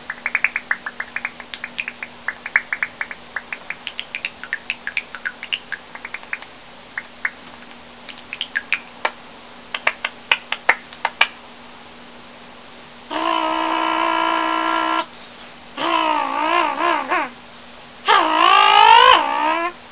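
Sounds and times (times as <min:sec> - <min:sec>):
sped-up mouth clicks and chirps: 0:00.0 - 0:10.7.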